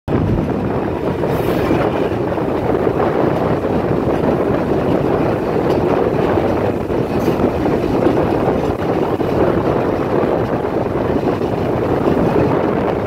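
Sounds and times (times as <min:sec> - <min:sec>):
air rushing past: 0:00.1 - 0:04.8
train wheels on rails: 0:00.1 - 0:13.0.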